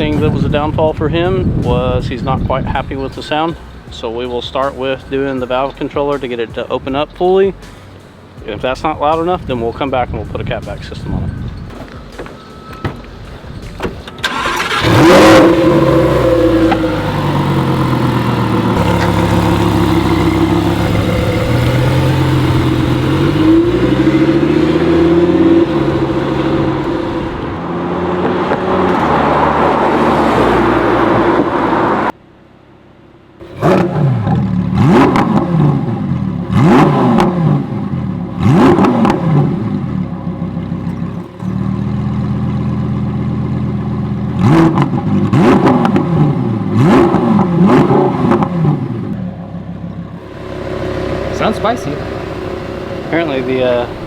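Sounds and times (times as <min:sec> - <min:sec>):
sports car engine starting and revving: 0:13.0 - 0:32.2, 0:32.8 - 0:54.0.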